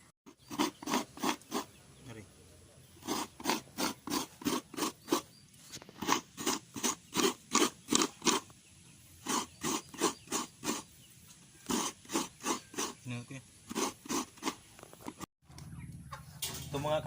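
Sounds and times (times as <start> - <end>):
coconut being grated by hand: 0.3 - 1.7, 3.0 - 5.3, 6.0 - 8.5, 9.2 - 10.9, 11.6 - 13.1, 13.7 - 15.2.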